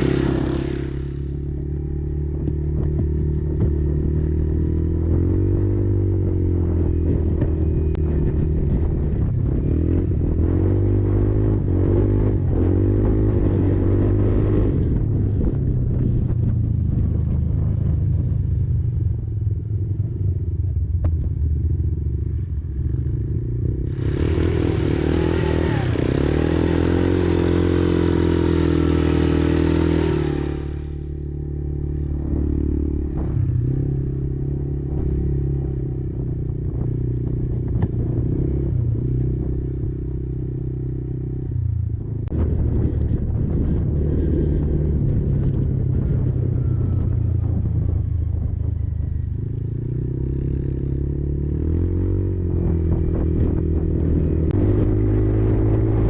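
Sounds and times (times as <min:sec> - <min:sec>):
quad engine revving: 0:00.0 - 0:15.5, 0:22.9 - 0:47.1, 0:49.2 - 0:56.0.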